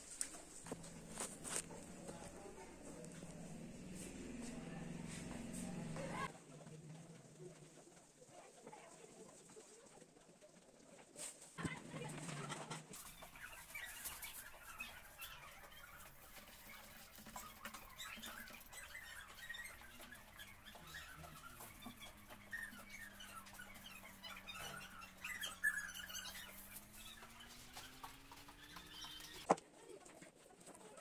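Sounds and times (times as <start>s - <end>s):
birds chirping and twittering: 13.0s - 29.5s.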